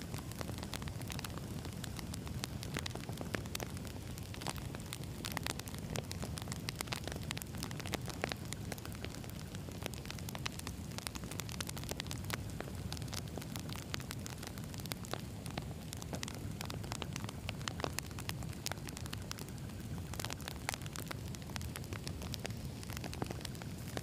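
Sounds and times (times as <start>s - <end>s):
campfire crackling and popping: 0.0s - 24.0s.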